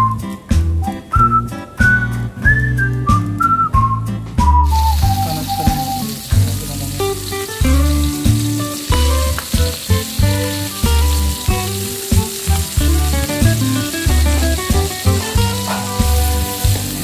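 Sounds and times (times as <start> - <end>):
background music with bass beat: 0.0 - 17.0
food sizzling in hot oil: 4.6 - 17.0.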